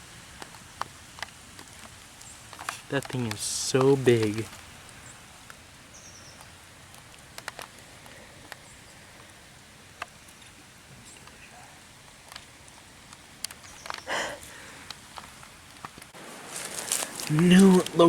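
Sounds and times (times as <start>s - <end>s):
faint outdoor ambience: 0.0s - 18.0s
light clicks and taps: 0.4s - 4.6s.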